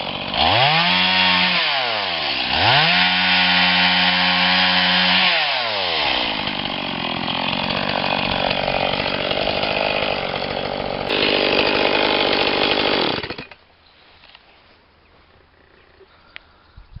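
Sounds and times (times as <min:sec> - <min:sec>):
chainsaw running: 0:00.0 - 0:13.6.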